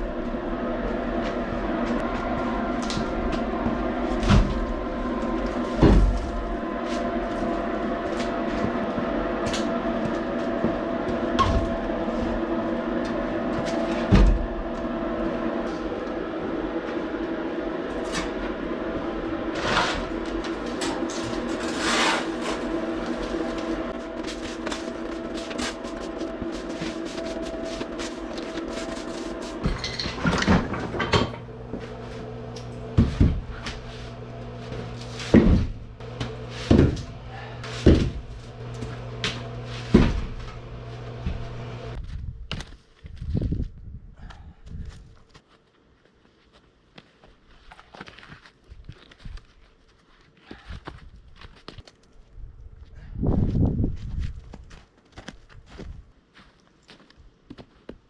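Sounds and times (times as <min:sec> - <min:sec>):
diesel tractor engine running: 0:00.0 - 0:42.0
steady low hum: 0:00.0 - 0:47.8.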